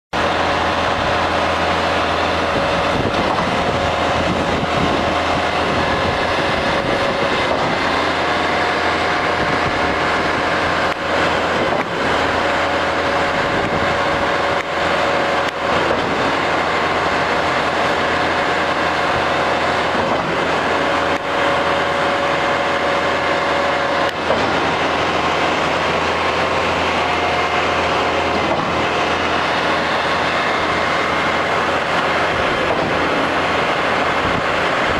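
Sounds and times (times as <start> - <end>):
concrete pump drone with whine: 0.1 - 34.9.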